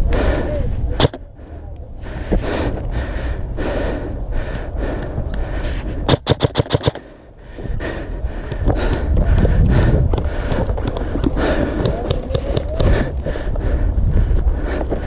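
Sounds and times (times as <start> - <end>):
wind rumble on microphone: 0.0 - 6.1, 7.3 - 15.0
heavy breathing: 0.0 - 15.0
rapid airsoft gun shots: 1.0 - 1.2, 6.1 - 7.1.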